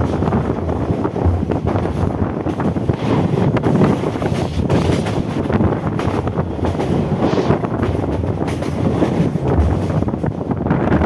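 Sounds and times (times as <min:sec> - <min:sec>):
train wheels rattling on rails: 0:00.0 - 0:11.0
wind buffeting microphone: 0:00.0 - 0:11.0.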